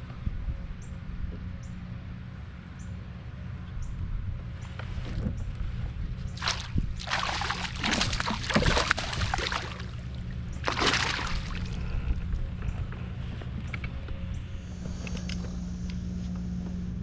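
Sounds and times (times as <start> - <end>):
steady low hum: 0.0 - 17.0
water splashing and sloshing: 6.2 - 12.1.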